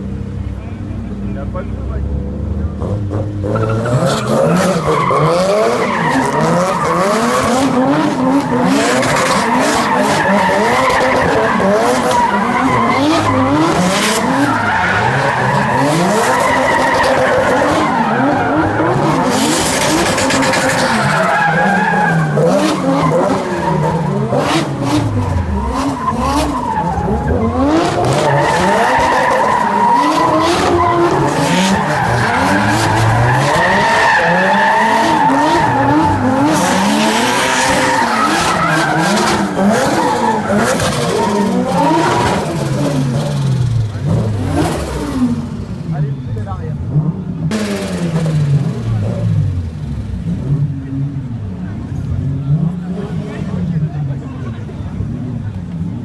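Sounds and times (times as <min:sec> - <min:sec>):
car engines revving hard: 0:00.0 - 0:56.0
tyres squealing: 0:03.4 - 0:43.2.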